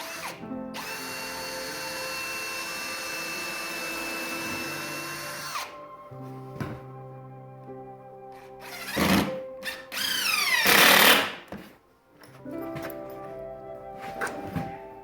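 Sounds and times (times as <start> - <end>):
power tool whining: 0.0 - 5.8, 8.6 - 11.5.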